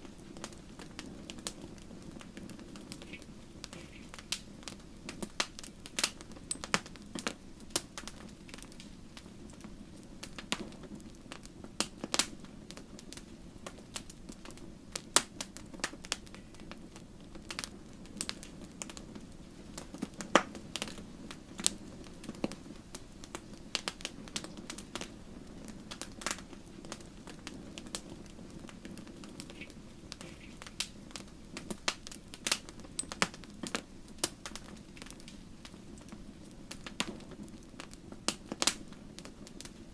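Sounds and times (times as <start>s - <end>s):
burning logs popping: 0.0s - 39.9s
low rush of flames: 0.0s - 39.9s
wood fire crackling: 0.0s - 39.9s.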